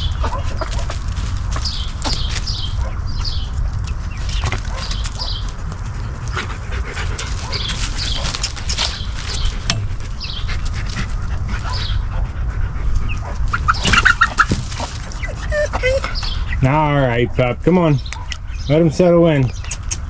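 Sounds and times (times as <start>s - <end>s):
birds chirping: 0.0s - 20.0s
dog panting and sniffing: 4.4s - 16.6s.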